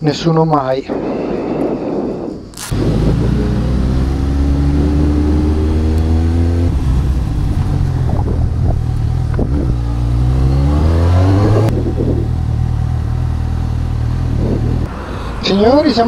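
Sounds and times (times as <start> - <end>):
motorcycle engine accelerating: 2.6 - 14.9.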